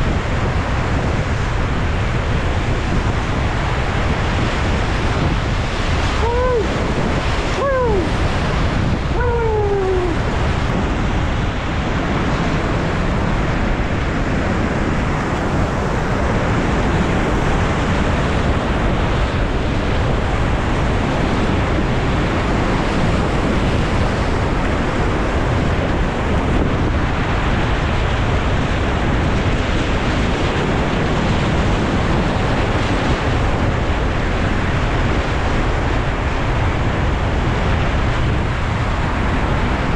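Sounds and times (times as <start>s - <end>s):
wind buffeting microphone: 0.0s - 39.9s
short shouts: 7.5s - 8.2s, 9.2s - 10.2s.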